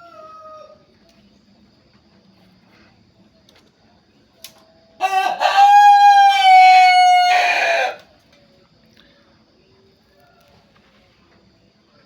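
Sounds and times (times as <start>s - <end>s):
rooster crowing: 0.0s - 0.8s, 5.0s - 8.1s.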